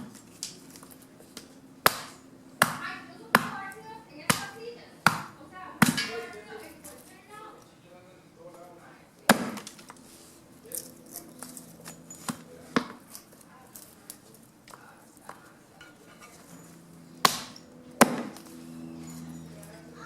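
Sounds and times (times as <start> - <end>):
blade chopping wood: 1.4 - 3.7, 4.3 - 6.3, 9.3 - 10.0, 12.2 - 13.1, 17.2 - 18.5.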